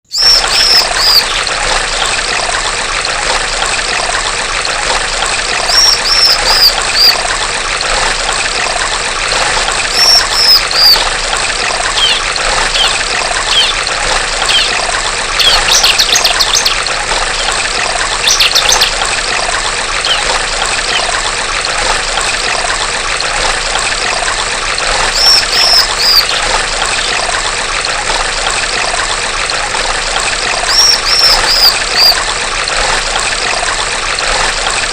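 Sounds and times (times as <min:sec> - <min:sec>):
stream water trickling: 0:00.0 - 0:34.9
bird calling high falling notes: 0:00.1 - 0:01.5, 0:05.6 - 0:07.2, 0:09.9 - 0:11.0, 0:11.9 - 0:13.8, 0:14.4 - 0:14.8, 0:25.1 - 0:26.5.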